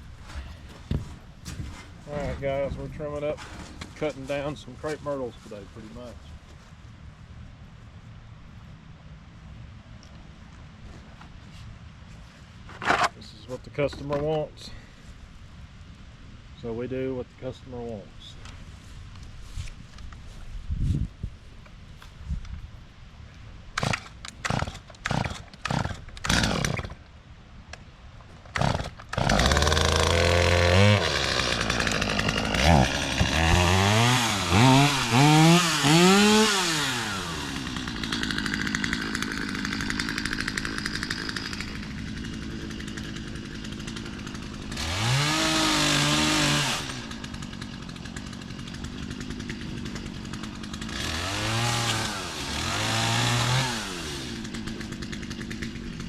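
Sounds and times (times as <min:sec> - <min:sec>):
chainsaw revving and cutting: 0:23.8 - 0:27.0, 0:28.5 - 0:56.0.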